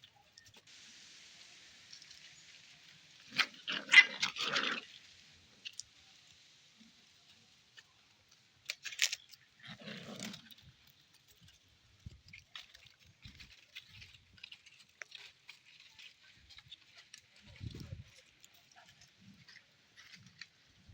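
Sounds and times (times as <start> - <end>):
puppies scuffling and pattering: 7.2 - 20.9.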